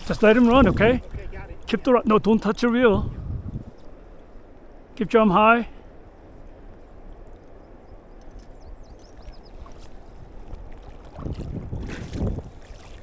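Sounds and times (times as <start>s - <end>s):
river water rushing: 0.0s - 2.6s
water splashing and sloshing: 0.0s - 3.0s, 5.9s - 13.0s
wind on microphone: 0.0s - 4.9s, 6.0s - 13.0s.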